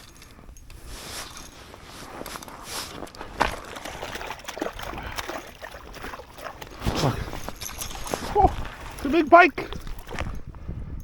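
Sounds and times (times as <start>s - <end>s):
water sloshing and splashing: 0.8s - 10.6s.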